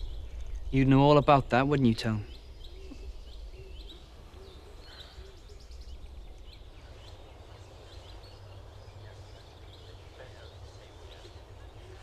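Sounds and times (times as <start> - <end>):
small birds chirping: 0.0 - 12.0
steady low rumble: 0.0 - 12.0.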